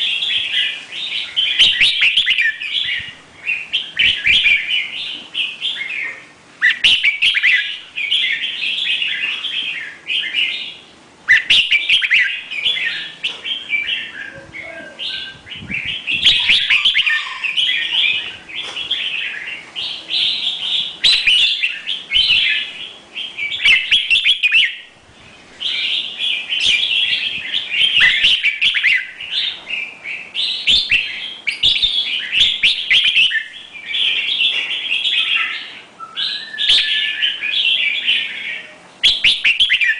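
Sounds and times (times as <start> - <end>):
bird singing rapid high chirps: 0.0 - 24.9, 25.6 - 39.9.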